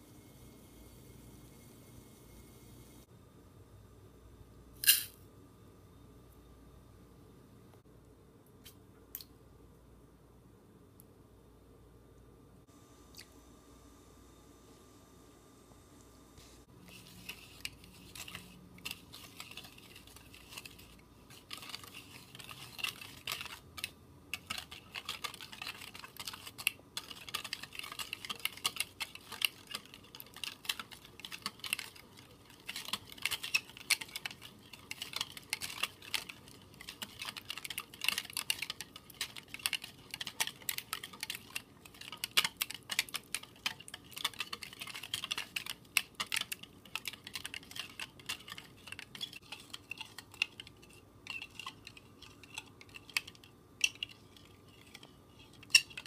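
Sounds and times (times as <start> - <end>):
whisk clicking against glass bowl: 17.6 - 54.2.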